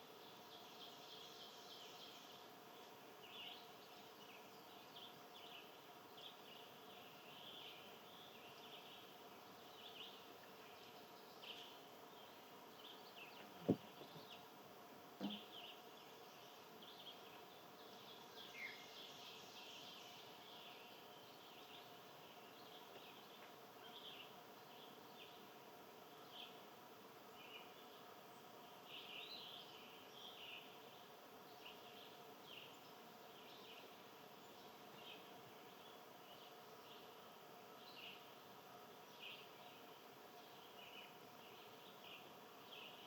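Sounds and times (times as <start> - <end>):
small birds chirping: 0.0 - 14.6, 15.2 - 43.0
soft knock: 15.2 - 15.5.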